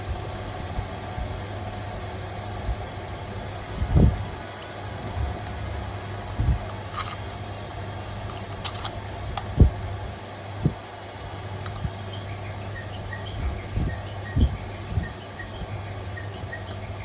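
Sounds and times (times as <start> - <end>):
low electrical hum: 0.0 - 17.0
sharp clicks: 11.6 - 12.0.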